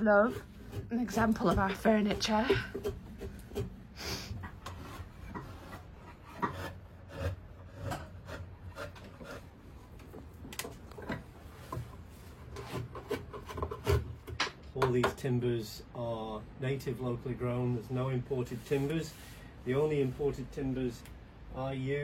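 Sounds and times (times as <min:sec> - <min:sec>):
faint knocks and rubbing: 0:00.2 - 0:15.2.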